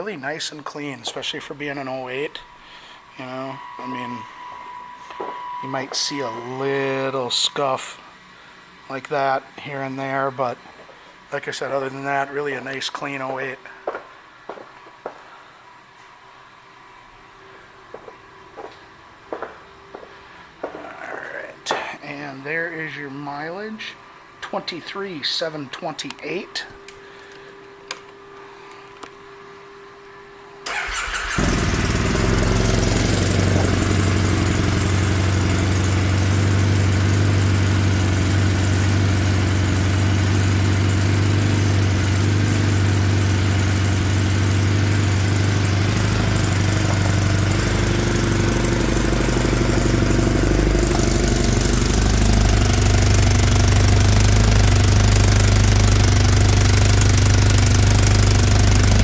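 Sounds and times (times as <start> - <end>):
motorcycle engine starting and idling: 30.6 - 59.0.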